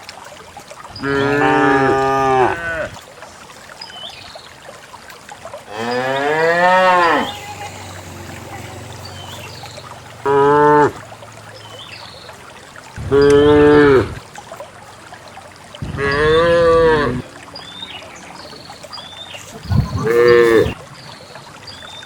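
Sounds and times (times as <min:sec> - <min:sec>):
cattle mooing: 0:05.7 - 0:11.0, 0:16.0 - 0:17.2, 0:20.0 - 0:20.8.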